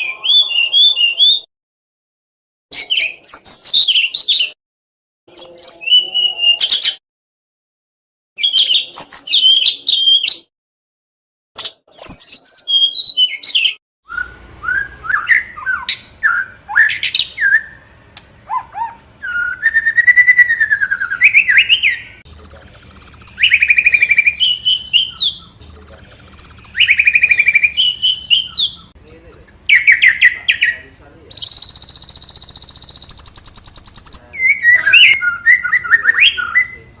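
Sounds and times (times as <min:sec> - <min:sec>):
songbird singing: 0:00.0 - 0:01.5, 0:12.1 - 0:37.0.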